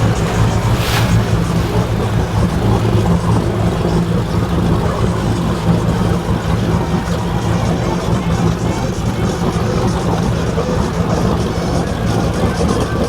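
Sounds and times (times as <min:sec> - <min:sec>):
boat engines humming: 0:00.0 - 0:13.0.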